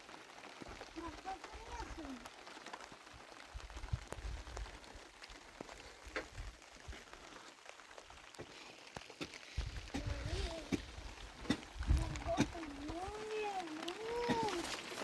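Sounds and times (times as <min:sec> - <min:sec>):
light rain pattering: 0:00.0 - 0:15.0
wind rumbling on microphone: 0:03.4 - 0:07.0, 0:09.5 - 0:14.3.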